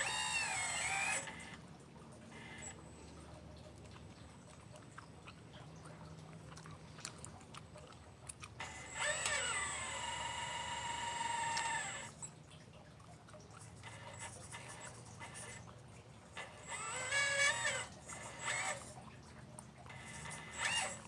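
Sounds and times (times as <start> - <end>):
model excavator motor whining: 0.0 - 1.6, 2.3 - 2.8, 8.6 - 12.3, 13.8 - 15.7, 16.4 - 19.0, 19.8 - 21.0.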